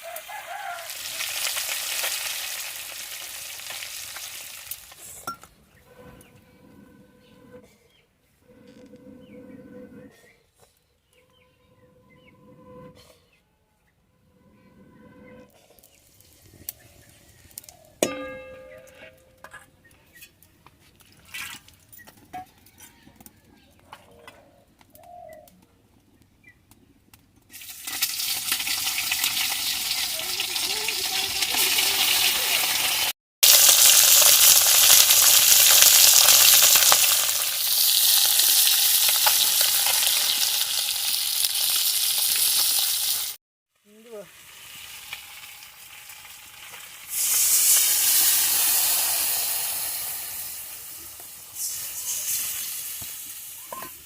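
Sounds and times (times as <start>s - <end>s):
food sizzling in hot oil: 0.0s - 5.2s, 27.5s - 43.4s, 44.1s - 54.0s
ringing metallic clink: 18.0s - 19.4s.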